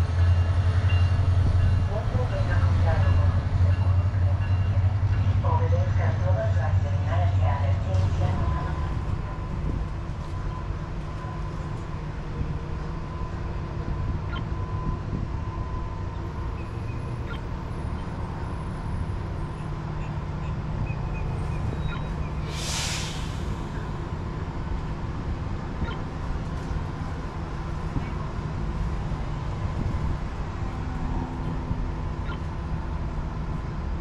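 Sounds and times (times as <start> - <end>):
train rumble and hum: 0.0 - 34.0
short hiss: 22.5 - 23.4.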